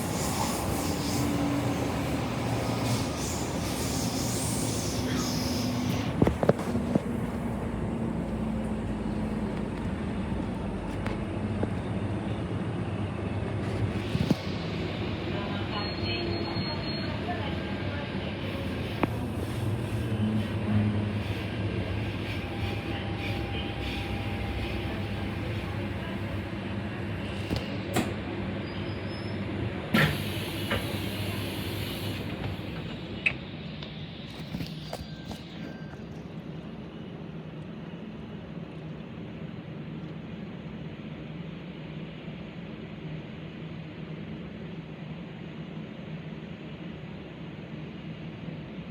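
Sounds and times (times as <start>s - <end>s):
air hiss: 0.0s - 6.2s, 30.0s - 32.8s
electric train rumbling: 0.0s - 48.9s
train clunks: 27.3s - 28.2s, 29.9s - 33.4s.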